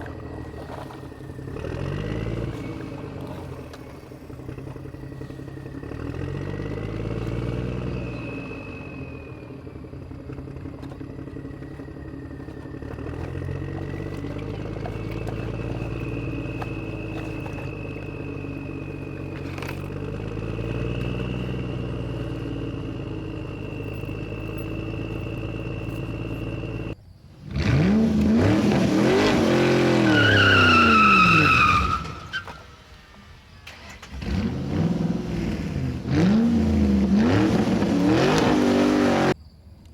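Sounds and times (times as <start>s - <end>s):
high squeal: 0.0s - 10.1s, 29.0s - 34.1s
vehicle engines revving: 0.0s - 39.4s.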